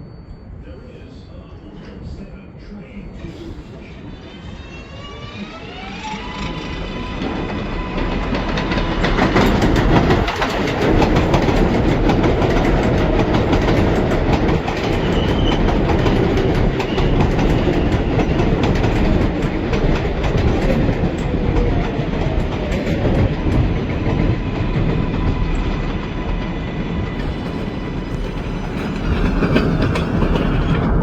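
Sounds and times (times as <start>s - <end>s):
subway train rumbling: 0.0s - 31.0s
steel wheels clattering over rail joints: 6.4s - 31.0s.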